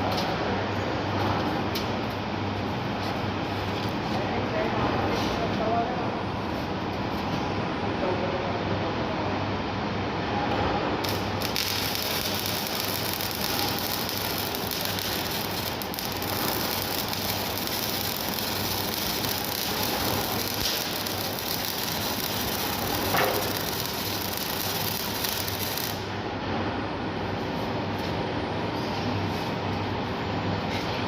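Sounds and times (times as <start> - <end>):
welding arc crackling hiss: 11.0 - 26.1.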